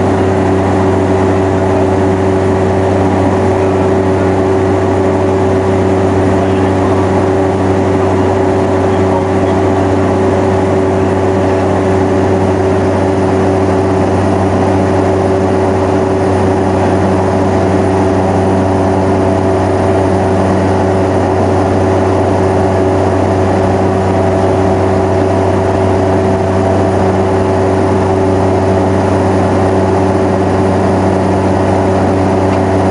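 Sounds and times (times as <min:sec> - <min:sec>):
turboprop drone inside cabin: 0:00.0 - 0:32.9.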